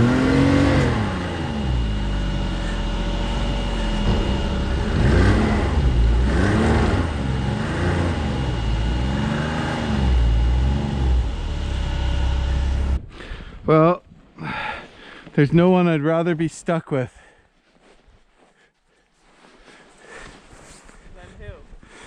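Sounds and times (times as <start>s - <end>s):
snowmobile engine revving: 0.0s - 13.0s.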